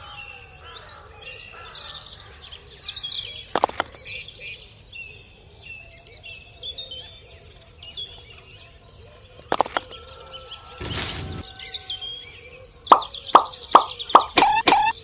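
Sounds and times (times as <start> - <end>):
birds chirping: 3.6 - 4.0, 9.5 - 10.0, 10.6 - 11.7, 12.8 - 15.0
sharp clicks: 3.6 - 4.0, 9.5 - 10.0.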